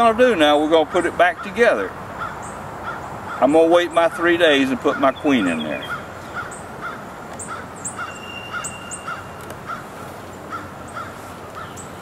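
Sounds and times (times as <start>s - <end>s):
high thin bird chirps: 7.4s - 9.5s.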